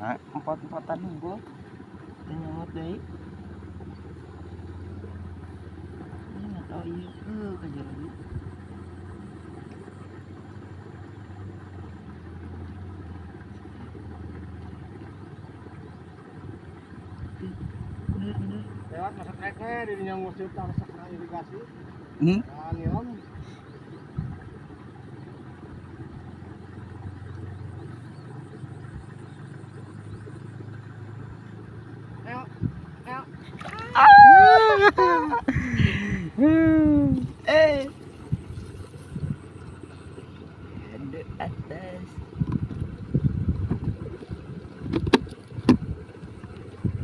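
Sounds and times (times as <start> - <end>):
small engine idling: 0.0 - 33.6.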